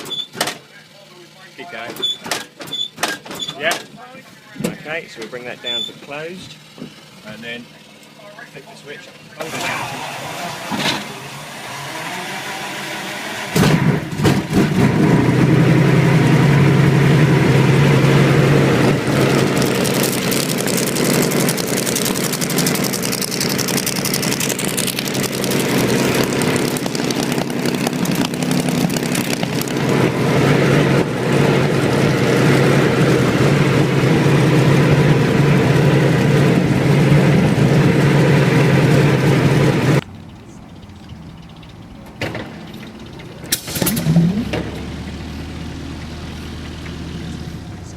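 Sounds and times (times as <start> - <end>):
engine starter cranking: 0.0 - 0.8, 1.5 - 4.0, 16.6 - 30.2, 39.8 - 47.9
piston aero engine running: 0.0 - 47.9.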